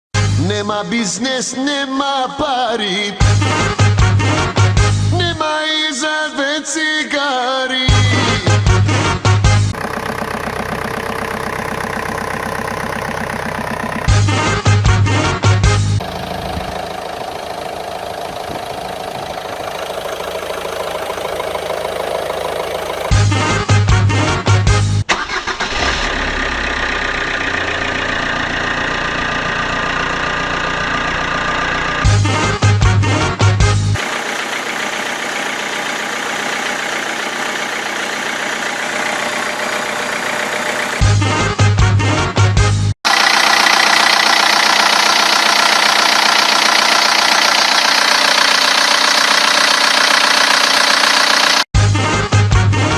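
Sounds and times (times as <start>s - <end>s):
diesel engine idling: 9.7s - 15.3s, 16.0s - 23.2s, 25.2s - 32.5s, 34.0s - 41.2s, 43.0s - 51.7s.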